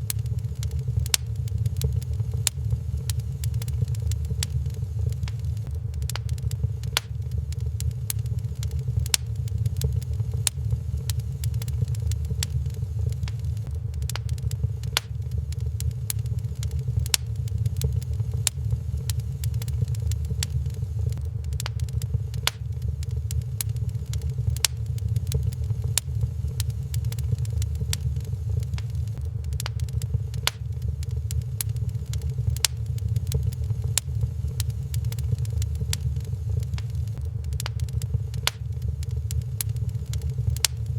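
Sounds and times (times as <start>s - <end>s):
low rumble: 0.0s - 40.9s
sharp pops of fire: 0.0s - 40.9s
wood fire crackling: 0.0s - 40.9s.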